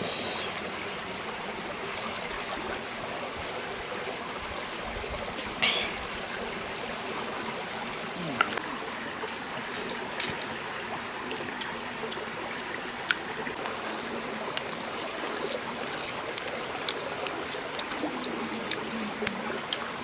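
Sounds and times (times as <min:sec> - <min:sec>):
stream water flowing: 0:00.0 - 0:20.0.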